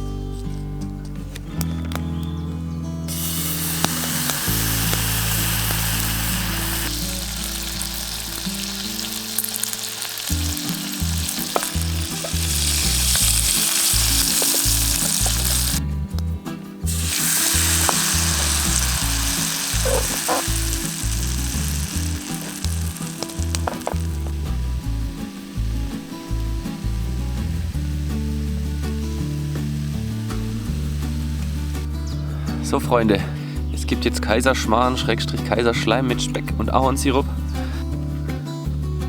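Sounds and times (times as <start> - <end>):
batter sizzling in a pan: 3.1 - 15.8, 16.8 - 31.9
small pops and crackles: 3.1 - 16.3, 16.9 - 31.8.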